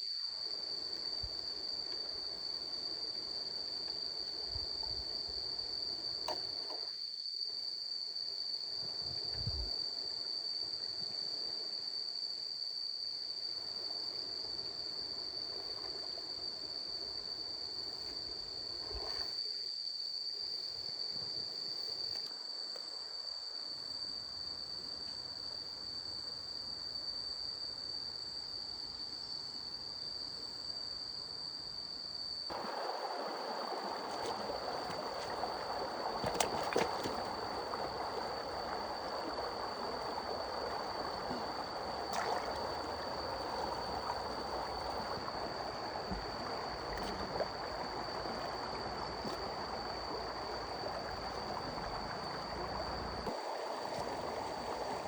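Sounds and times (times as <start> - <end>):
stream water running: 32.5 - 55.0.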